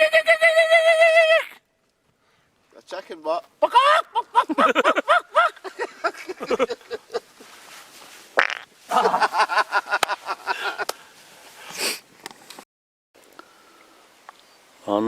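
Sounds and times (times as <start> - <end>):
people making animal-call impressions: 0.0 - 1.6.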